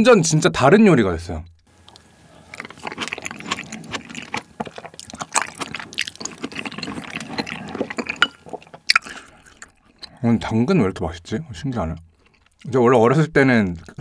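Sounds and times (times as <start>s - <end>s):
wet chewing: 1.8s - 10.4s, 12.0s - 14.0s.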